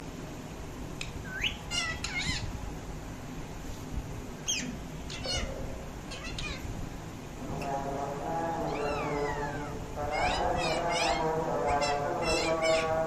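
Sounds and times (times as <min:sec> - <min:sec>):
parrot squawking: 0:01.3 - 0:02.5, 0:04.5 - 0:06.7, 0:08.5 - 0:13.0.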